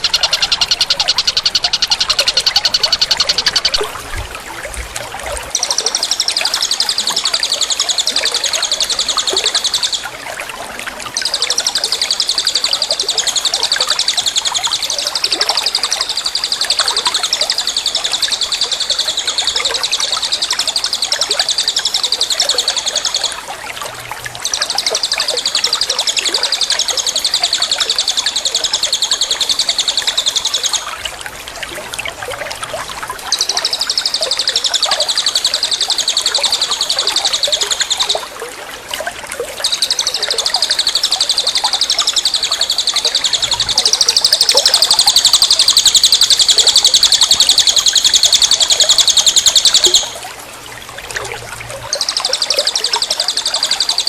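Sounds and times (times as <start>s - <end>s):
songbird trilling: 0.0s - 4.0s, 5.5s - 10.2s, 33.3s - 38.2s, 39.6s - 50.2s, 51.8s - 54.0s
rushing background noise: 0.0s - 4.9s.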